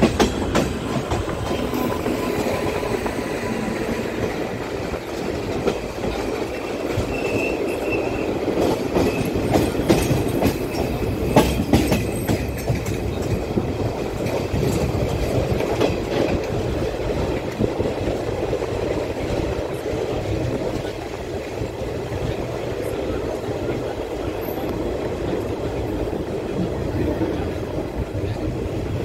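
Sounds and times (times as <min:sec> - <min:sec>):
train rumble: 0:00.0 - 0:29.0
high-pitched train squeal: 0:00.3 - 0:04.9, 0:06.9 - 0:09.8
wheels clicking over rail joints: 0:04.0 - 0:25.9.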